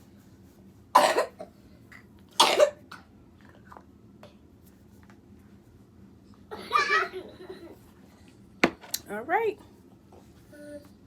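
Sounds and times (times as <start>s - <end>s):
person coughing: 1.0s - 1.5s, 2.4s - 2.8s.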